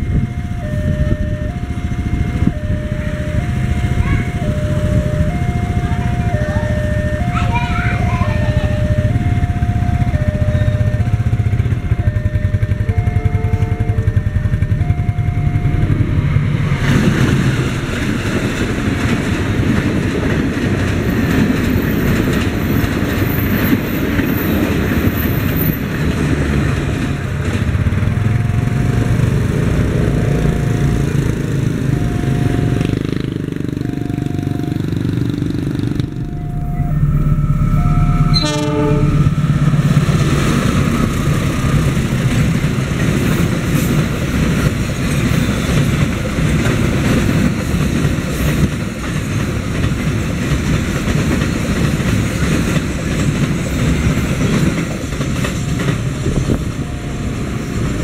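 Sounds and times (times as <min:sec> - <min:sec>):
repeating crossing tone: 0:00.0 - 0:17.0, 0:28.2 - 0:42.5, 0:55.5 - 0:58.0
train rumbling and clattering past: 0:00.0 - 0:58.0
freight train wheel clatter: 0:15.9 - 0:33.9, 0:38.3 - 0:58.0
train horn: 0:36.3 - 0:39.6.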